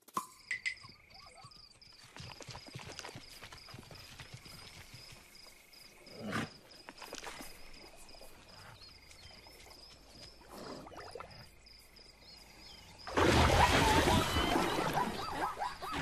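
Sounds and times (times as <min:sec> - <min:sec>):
insect chirping: 0:00.1 - 0:16.0
hooves clopping: 0:00.7 - 0:10.8
animal call: 0:13.3 - 0:16.0.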